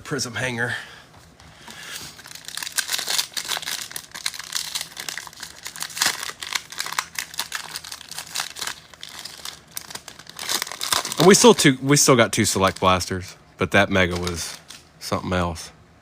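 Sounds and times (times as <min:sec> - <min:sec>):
cellophane wrapper crinkling: 0:01.9 - 0:11.8, 0:12.4 - 0:13.3, 0:14.0 - 0:14.9.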